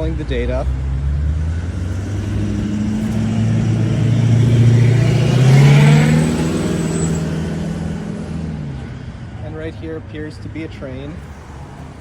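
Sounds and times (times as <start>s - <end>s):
vehicle accelerating past: 0.6s - 9.4s.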